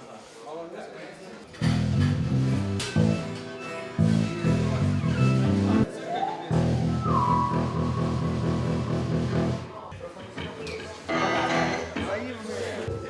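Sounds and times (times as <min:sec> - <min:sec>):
rock band music: 0:01.8 - 0:06.0, 0:06.6 - 0:09.8.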